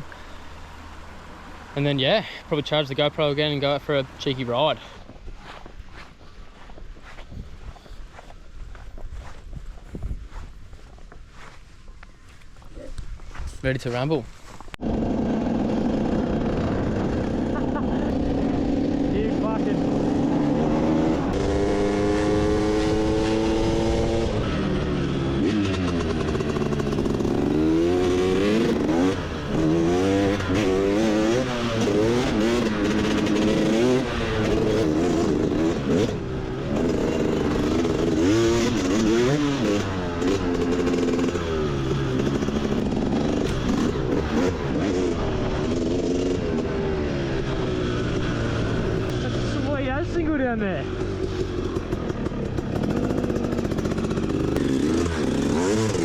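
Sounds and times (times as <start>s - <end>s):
motorbike engine revving: 14.8s - 56.0s.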